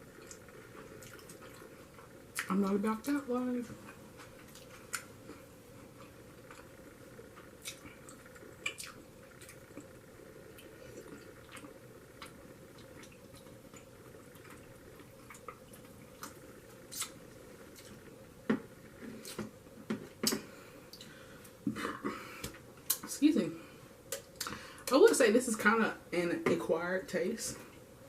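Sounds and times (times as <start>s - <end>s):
wet mouth chewing sounds: 0.1s - 2.5s, 3.8s - 18.1s.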